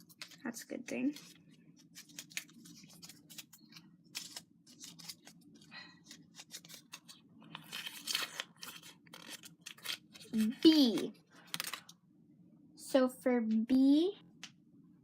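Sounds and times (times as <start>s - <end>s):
paper slips rustling: 0.0s - 11.9s
paper crinkling: 0.0s - 12.0s.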